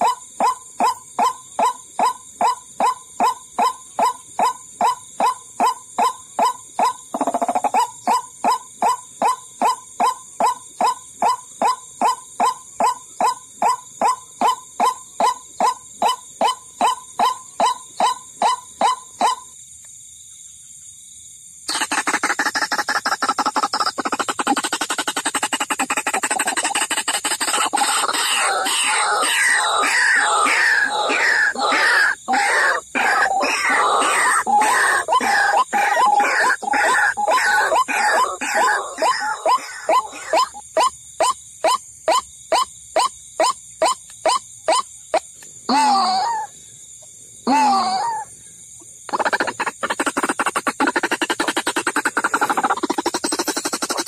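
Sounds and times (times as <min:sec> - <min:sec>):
waterhen croaking calls: 0:00.0 - 0:19.4, 0:21.7 - 0:44.9, 0:49.1 - 0:54.0
waterhen calling: 0:21.7 - 0:44.8.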